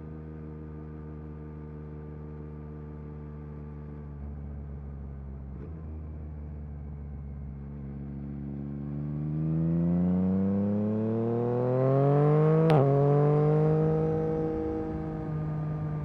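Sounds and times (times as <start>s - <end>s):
motorcycle engine accelerating: 7.6s - 16.0s.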